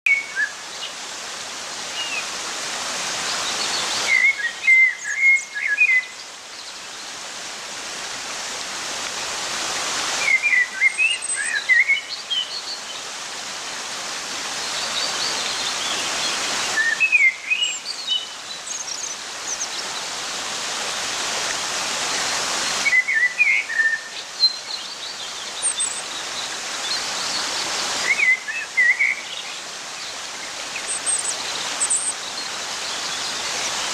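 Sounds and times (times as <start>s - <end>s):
running water: 0.1s - 33.9s
small birds chirping: 10.1s - 13.3s, 14.5s - 20.3s, 22.2s - 33.9s.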